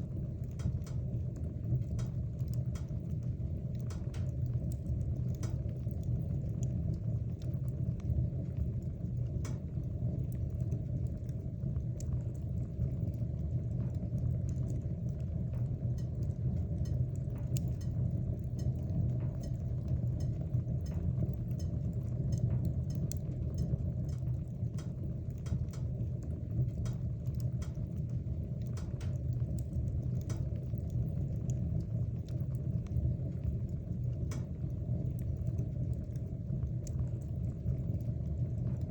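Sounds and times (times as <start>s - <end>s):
burning wood crackling and popping: 0.0s - 38.9s
low rumble of flames: 0.0s - 38.9s.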